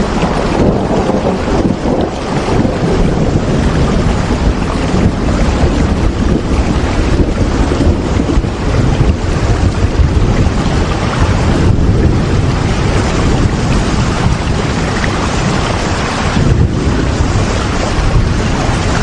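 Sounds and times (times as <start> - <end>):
deep rumble: 0.0 - 19.0
steady rain: 0.0 - 19.0.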